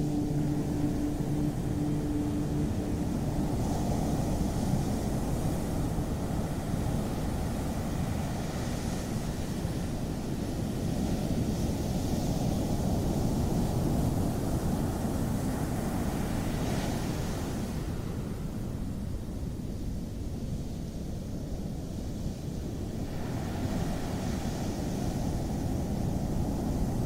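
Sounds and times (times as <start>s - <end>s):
waves breaking: 0.0s - 18.1s
faint steady hum: 0.0s - 27.0s
hiss of surf wash: 0.0s - 27.0s.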